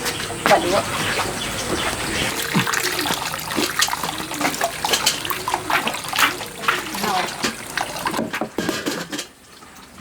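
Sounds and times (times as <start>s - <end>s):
water trickling and splashing: 0.0s - 10.0s
water dripping: 1.2s - 8.2s.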